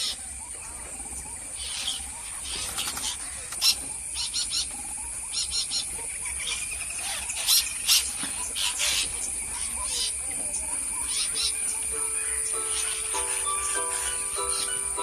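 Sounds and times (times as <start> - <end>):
parrots calling harshly: 11.1 - 15.0
high-pitched drone: 11.5 - 15.0.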